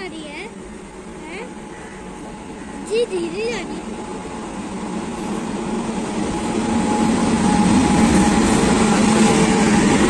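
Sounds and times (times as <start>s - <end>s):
electric locomotive hum: 0.0s - 10.0s.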